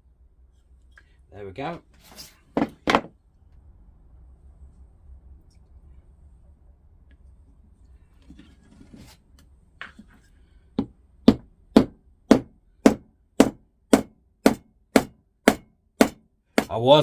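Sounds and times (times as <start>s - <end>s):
light knocks and handling noises: 8.2s - 11.0s
hammer blows on wood: 10.8s - 16.9s.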